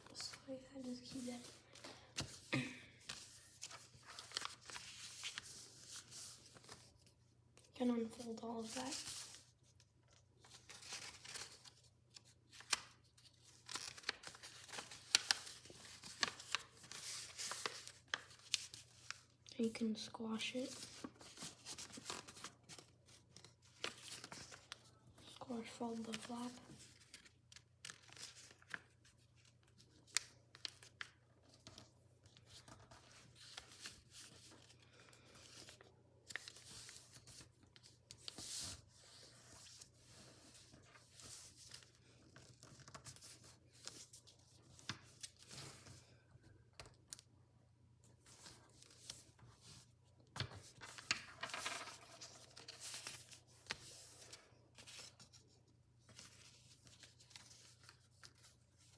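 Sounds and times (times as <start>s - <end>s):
paper rustling: 0.0s - 19.5s, 20.7s - 46.1s, 48.2s - 58.9s
sharp paper crackles: 3.1s - 6.9s, 10.5s - 19.2s, 50.4s - 55.4s
paper crackling: 3.1s - 9.5s, 10.1s - 19.5s, 20.7s - 25.0s, 25.6s - 45.9s, 50.4s - 58.9s.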